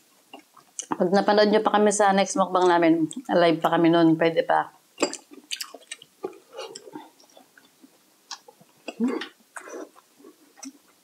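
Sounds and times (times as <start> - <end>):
person chewing with wet mouth: 5.1 - 11.0.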